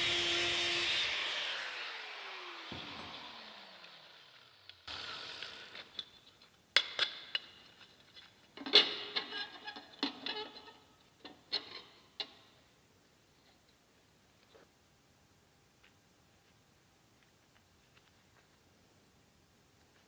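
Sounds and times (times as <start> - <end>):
power tool motor winding down: 0.0 - 5.9.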